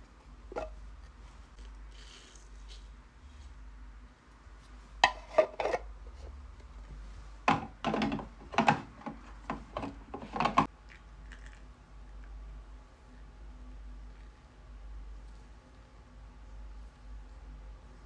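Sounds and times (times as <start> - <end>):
objects knocking and clattering: 5.0 - 5.9, 7.4 - 10.7.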